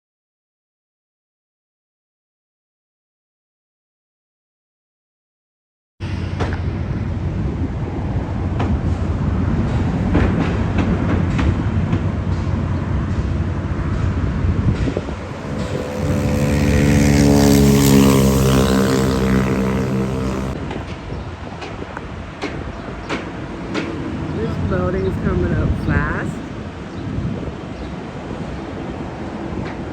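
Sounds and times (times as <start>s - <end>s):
outdoor traffic noise: 6.0s - 29.9s
heavy vehicle passing: 13.6s - 20.8s.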